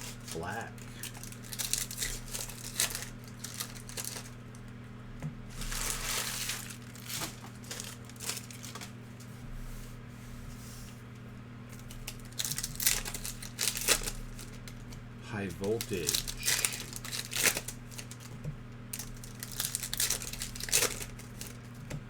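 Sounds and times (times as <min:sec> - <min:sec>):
plastic wrappers tearing and crinkling: 0:00.0 - 0:04.7, 0:05.5 - 0:09.0, 0:11.7 - 0:21.8
cards shuffling: 0:15.6 - 0:18.3.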